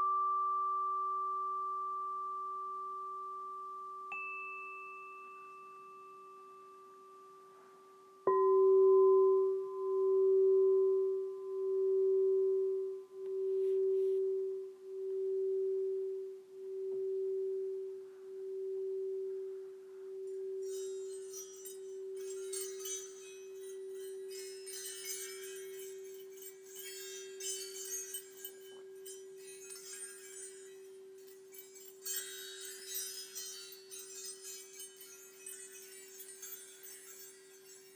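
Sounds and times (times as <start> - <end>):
singing bowl ringing: 0.0 - 37.9
high shimmering chimes: 20.2 - 37.9.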